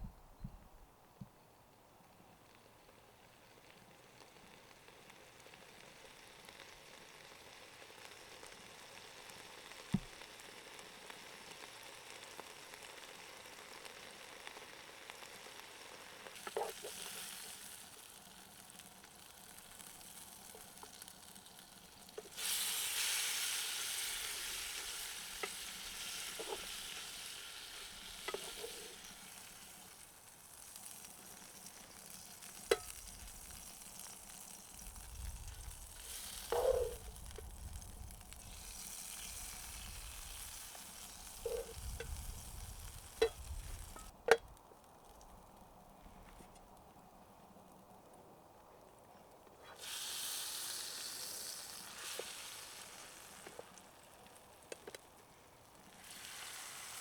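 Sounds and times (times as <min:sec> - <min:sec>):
fire crackling and hissing: 0:02.1 - 0:57.0
fire popping: 0:16.2 - 0:48.2, 0:50.8 - 0:57.0.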